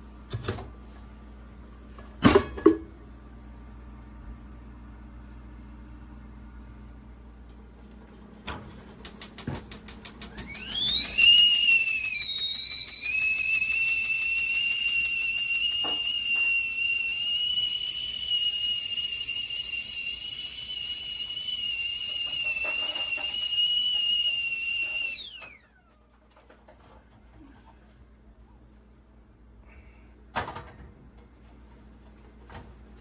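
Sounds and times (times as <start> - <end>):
stovetop kettle whistling: 9.0 - 25.9.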